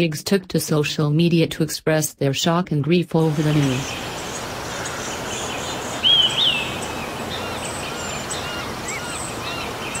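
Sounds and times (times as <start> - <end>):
background hiss: 3.2 - 10.0
birds chirping: 3.2 - 10.0
two-part whistled bird call: 5.5 - 10.0.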